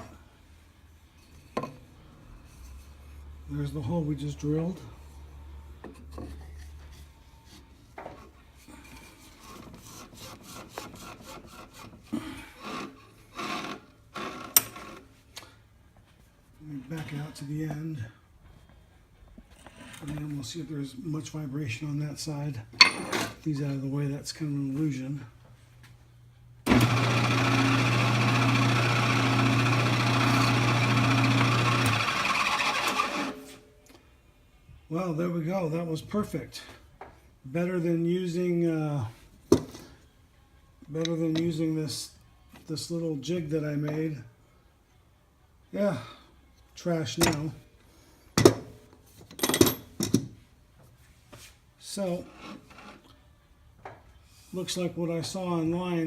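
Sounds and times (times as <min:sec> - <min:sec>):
lathe motor humming: 0:26.7 - 0:33.4
wood scraping against metal: 0:52.1 - 0:53.1.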